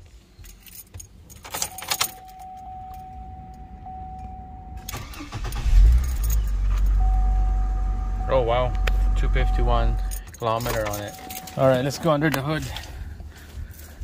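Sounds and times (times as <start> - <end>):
car engine cranking and idling: 0.1 - 14.0
keys jangling: 0.4 - 3.6, 4.8 - 7.0, 10.0 - 12.0
electronic warning tone: 2.1 - 5.6, 6.9 - 10.1.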